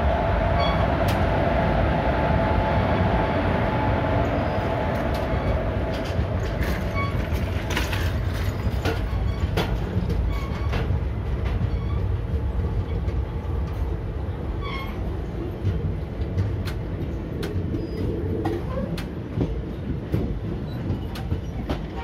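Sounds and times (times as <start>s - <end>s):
train wheels rumbling on track: 0.0s - 22.0s
wheels clacking over rail joints: 4.6s - 22.0s.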